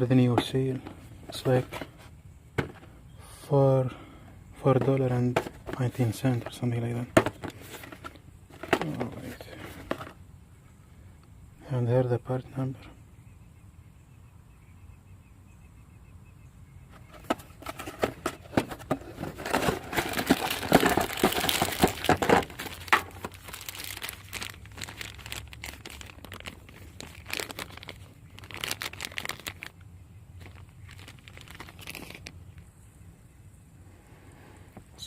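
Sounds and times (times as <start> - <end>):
packaging crinkling and tearing: 17.6 - 29.8, 30.4 - 32.6.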